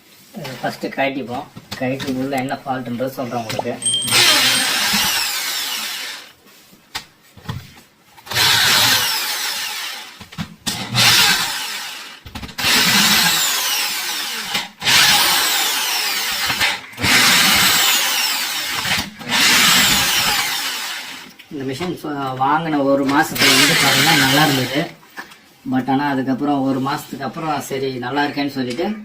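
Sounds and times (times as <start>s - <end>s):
electric drill bursts: 3.4s - 6.3s, 8.2s - 10.2s, 10.8s - 21.4s, 23.4s - 24.9s.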